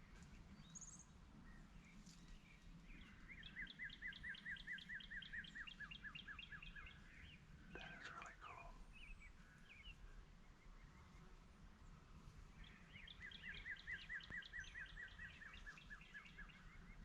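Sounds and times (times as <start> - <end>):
faint outdoor background noise: 0.0 - 17.0
bird chirps: 3.0 - 10.0, 12.6 - 17.0.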